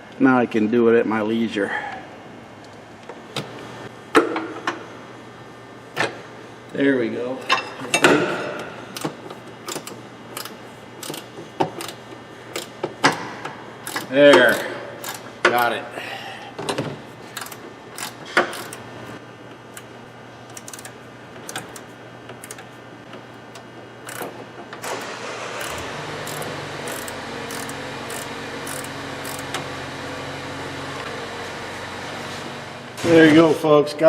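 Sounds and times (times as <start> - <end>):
steady hum: 0.0 - 34.0
ratchet wrench clicking: 9.0 - 11.2, 11.8 - 12.7, 13.8 - 15.3, 17.4 - 18.8, 20.5 - 20.9, 24.0 - 24.3, 25.6 - 29.5.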